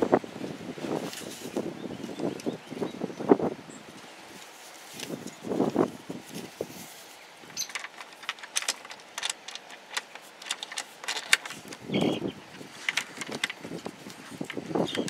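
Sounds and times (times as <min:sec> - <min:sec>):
plastic and metal parts clicking: 0:07.5 - 0:15.0.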